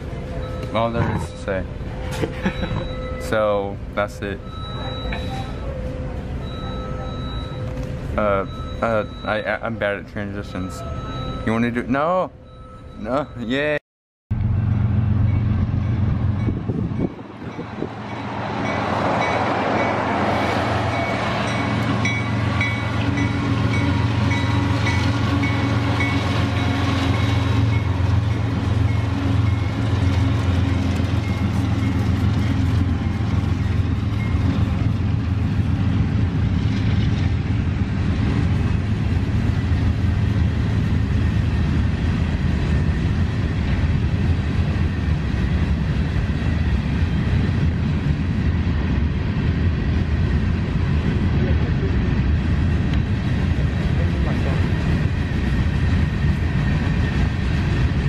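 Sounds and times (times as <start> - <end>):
locomotive engine hum: 0.0 - 58.0
freight cars rolling by: 14.4 - 58.0.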